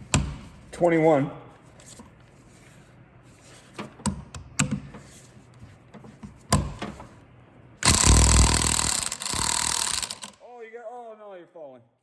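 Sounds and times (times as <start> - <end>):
power tool rattling on nut: 7.8 - 10.4.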